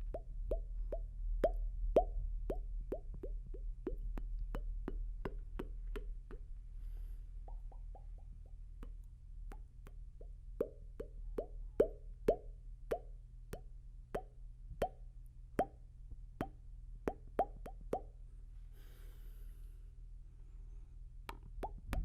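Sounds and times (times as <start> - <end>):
mouth popping clicks: 0.0 - 6.5, 7.4 - 15.8, 16.4 - 18.2, 21.3 - 22.0
low steady hum: 0.0 - 22.0.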